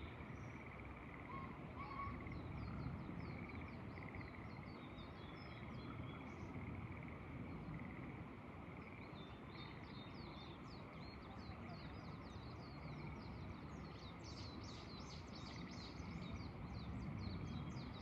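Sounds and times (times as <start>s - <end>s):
frogs calling in trills: 0.0s - 13.8s
wind rumble: 15.9s - 18.0s.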